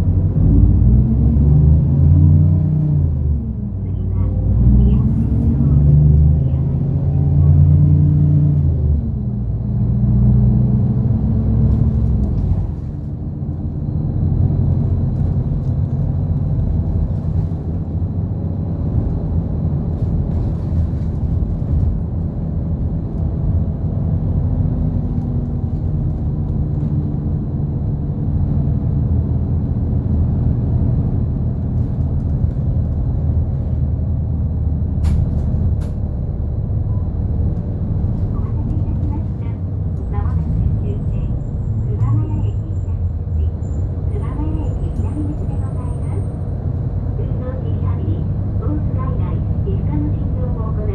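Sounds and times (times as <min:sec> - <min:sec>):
bus engine and road noise: 0:00.0 - 0:50.9.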